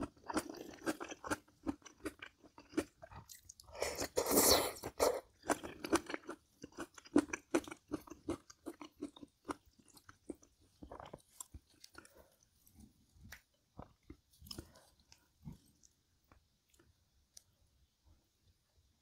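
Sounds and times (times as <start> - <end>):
wet chewing clicks: 0.0 - 3.8, 4.4 - 12.5
crunchy food chewing: 0.0 - 17.5.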